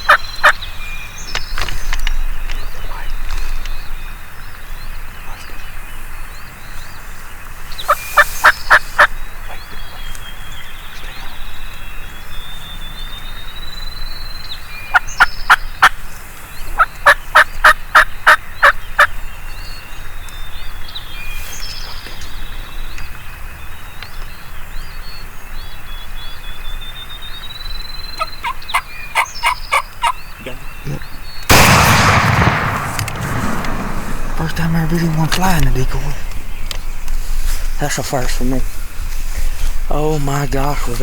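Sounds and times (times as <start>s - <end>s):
shotgun blast: 31.5s - 35.8s.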